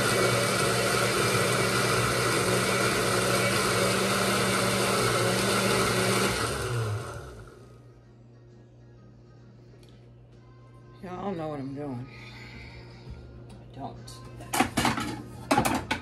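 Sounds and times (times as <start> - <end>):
electric blender motor running: 0.0 - 7.8.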